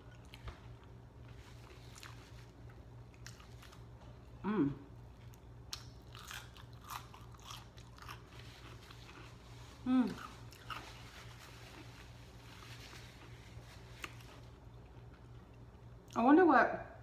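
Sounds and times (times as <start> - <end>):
steady low hum: 0.0 - 17.0
short hummed vocal sound: 4.3 - 5.1, 9.7 - 10.4.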